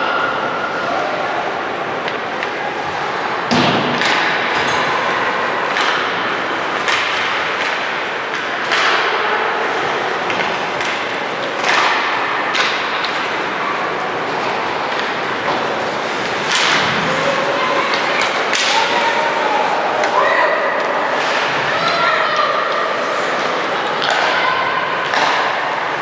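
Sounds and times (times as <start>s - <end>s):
puck and stick thuds and cracks: 3.5s - 4.8s, 5.6s - 9.2s, 10.3s - 13.6s, 14.2s - 20.2s, 23.3s - 24.4s, 25.1s - 25.8s
rink noise: 13.2s - 20.2s.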